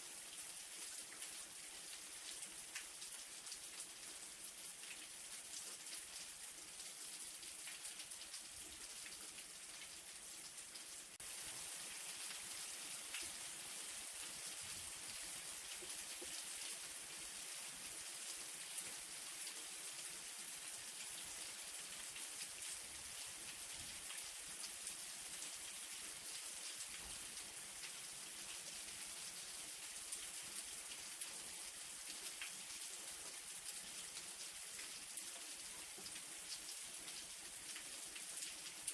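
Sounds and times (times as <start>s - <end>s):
light rain falling: 0.0s - 38.9s.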